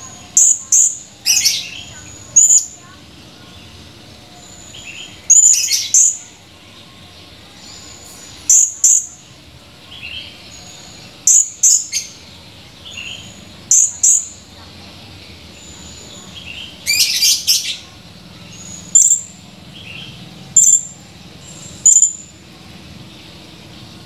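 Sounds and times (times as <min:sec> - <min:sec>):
parrot high-pitched calls: 0:04.6 - 0:06.3, 0:08.4 - 0:09.2, 0:13.0 - 0:14.4, 0:16.8 - 0:17.8, 0:18.6 - 0:19.4, 0:21.6 - 0:22.3.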